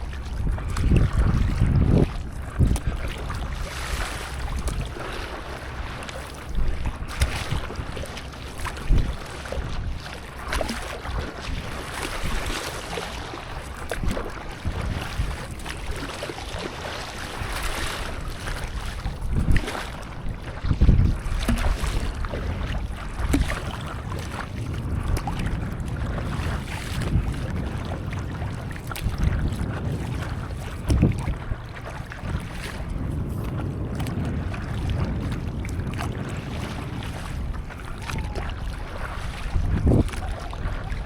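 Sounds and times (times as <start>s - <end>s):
water splashing and lapping: 0.0s - 41.0s
wind on microphone: 0.0s - 41.0s.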